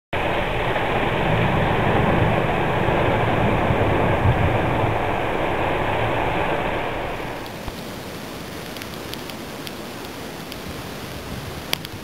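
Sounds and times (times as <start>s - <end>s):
low rumble: 0.1s - 7.8s
storm wind buffeting microphone: 0.1s - 12.0s.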